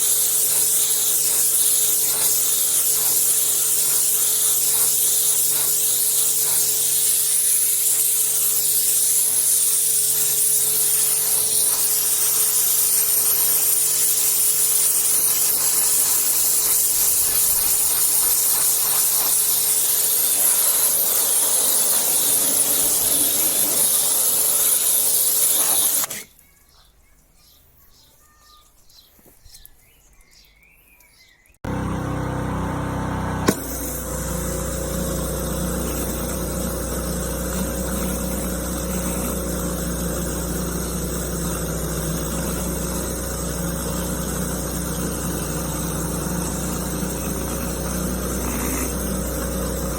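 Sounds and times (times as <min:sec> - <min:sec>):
pressure washer water jet hiss: 0:00.0 - 0:26.2, 0:33.4 - 0:49.9
pressure washer machine hum: 0:00.0 - 0:26.3, 0:31.6 - 0:49.9
faint chirps: 0:26.2 - 0:31.6
loud engine hum: 0:31.7 - 0:49.9.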